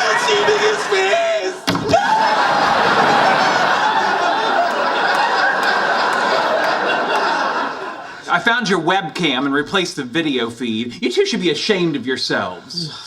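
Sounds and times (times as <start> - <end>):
audience laughing: 0.0 - 8.5.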